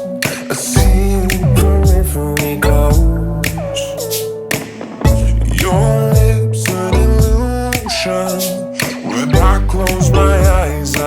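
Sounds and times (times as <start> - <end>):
rhythm and blues instrumental music: 0.0 - 11.0.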